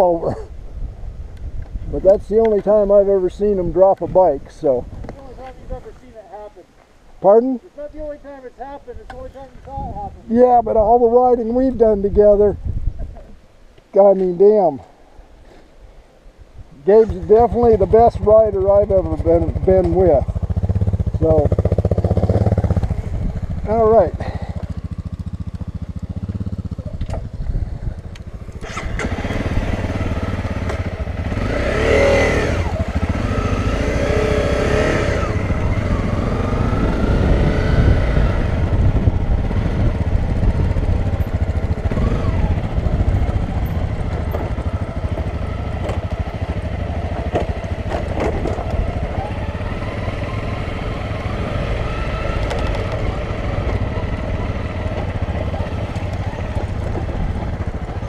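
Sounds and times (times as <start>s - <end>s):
dirt bike engine revving: 16.8s - 27.4s, 28.2s - 58.0s.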